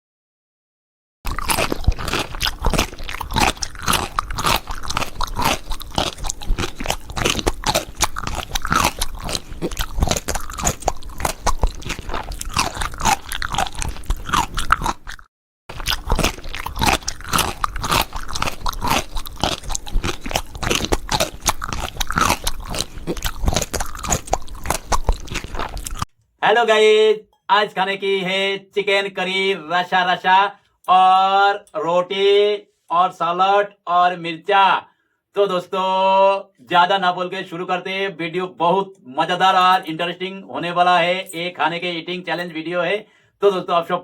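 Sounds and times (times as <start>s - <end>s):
chewing and crunching food: 1.3s - 26.1s, 39.4s - 40.0s.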